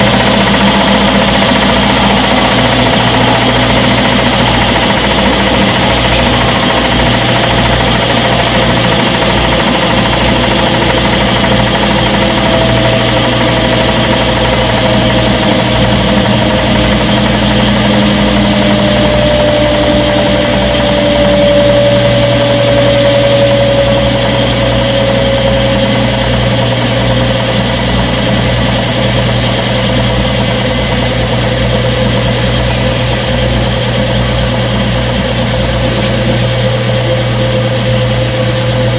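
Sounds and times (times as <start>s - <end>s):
falling whine: 0.0s - 14.3s, 18.0s - 26.8s, 32.4s - 38.0s
washing machine motor hum: 0.0s - 38.9s.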